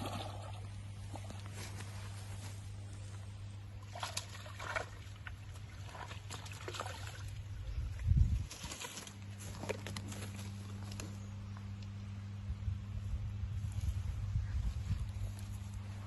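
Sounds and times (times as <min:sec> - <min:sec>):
steady low hum: 0:00.0 - 0:16.0
water splashing and trickling: 0:03.8 - 0:09.8.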